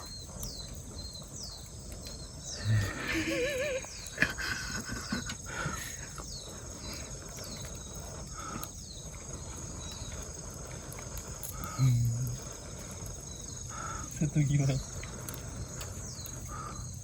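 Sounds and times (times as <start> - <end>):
insects shrilling: 0.0 - 17.0.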